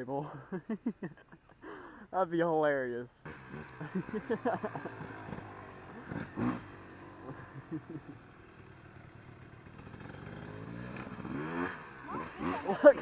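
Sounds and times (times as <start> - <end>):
two-stroke dirt bike engine: 3.2 - 13.0.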